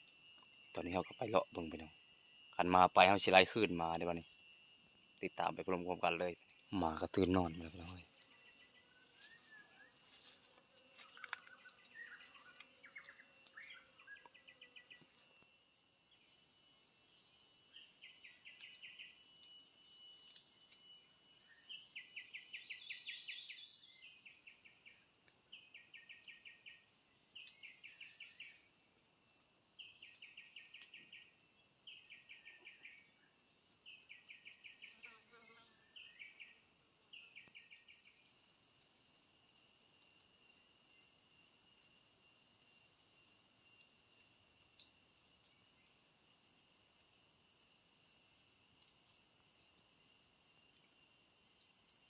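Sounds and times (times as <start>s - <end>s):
insect pulsed trills: 0.0s - 10.4s, 11.0s - 52.0s
faint high insect buzz: 0.0s - 52.0s.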